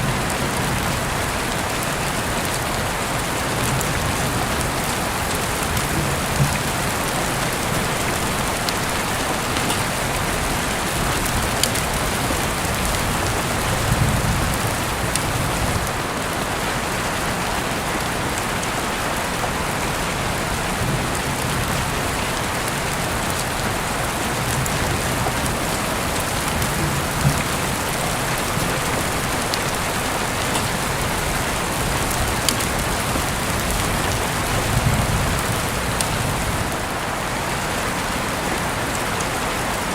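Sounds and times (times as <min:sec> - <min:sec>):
heavy rain hissing: 0:00.0 - 0:39.9
raindrops ticking on surfaces: 0:00.0 - 0:39.9.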